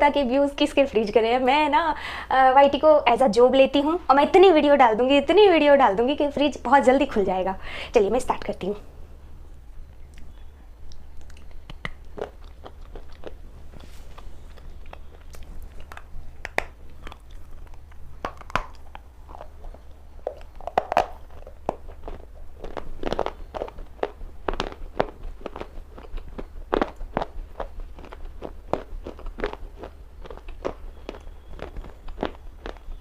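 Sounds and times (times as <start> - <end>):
low hum: 2.9 - 33.0
chewing crunchy stone: 10.2 - 33.0.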